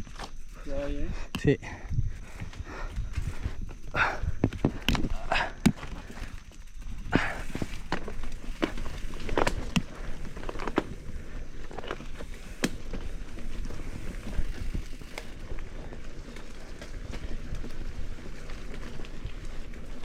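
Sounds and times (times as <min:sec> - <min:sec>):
rolling tyres rumble: 0:01.9 - 0:20.0.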